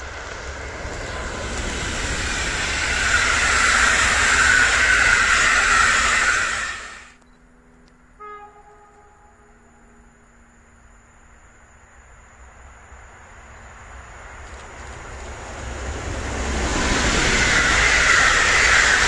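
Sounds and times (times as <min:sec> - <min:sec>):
train passing at speed: 0:00.0 - 0:19.0
faint brief tone: 0:07.2 - 0:11.2.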